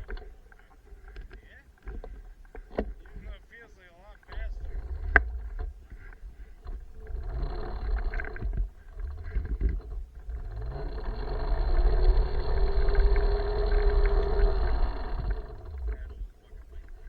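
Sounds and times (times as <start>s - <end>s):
electric minibike motor whining: 0.0s - 17.0s
wind rumble on microphone: 4.3s - 17.0s.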